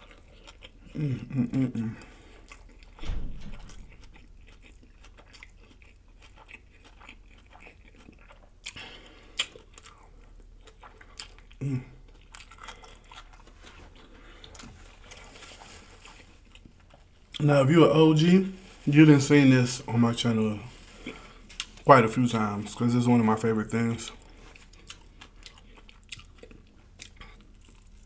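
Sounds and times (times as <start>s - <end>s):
person chewing crunchy food: 0.0s - 17.6s, 19.9s - 21.9s, 24.0s - 28.0s
low thump: 3.0s - 4.1s.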